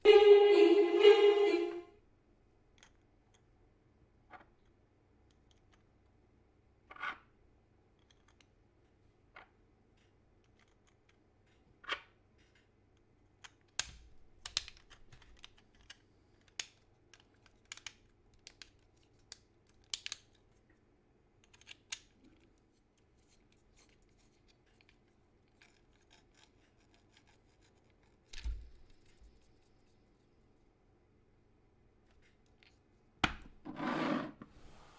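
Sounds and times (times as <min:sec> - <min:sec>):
pitched tone: 0:00.0 - 0:01.9
plastic parts clicking and tapping: 0:08.0 - 0:20.5, 0:21.4 - 0:25.0.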